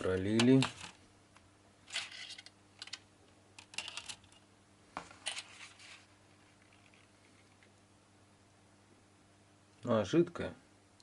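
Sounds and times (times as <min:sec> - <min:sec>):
faint low hum: 0:00.0 - 0:11.0
small objects clicking and clattering: 0:01.9 - 0:03.0, 0:03.6 - 0:04.4.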